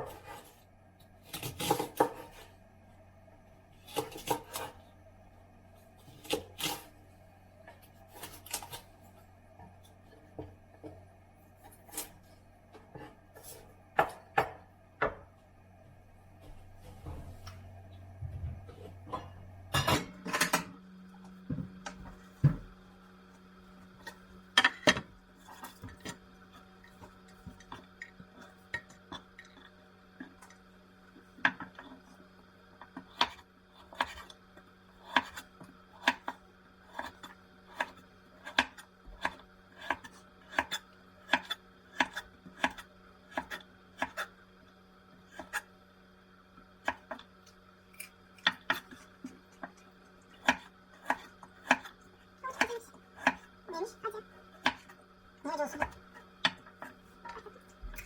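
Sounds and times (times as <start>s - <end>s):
low hum: 8.9s - 31.2s
knife chopping on cutting board: 35.0s - 35.4s, 50.4s - 51.9s.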